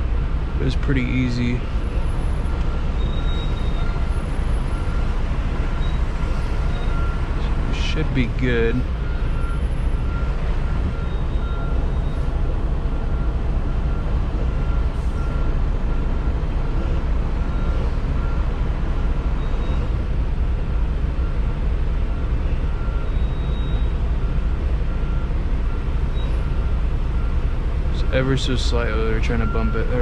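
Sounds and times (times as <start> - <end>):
backup alarm beeping: 1.8 - 18.5, 22.7 - 30.0.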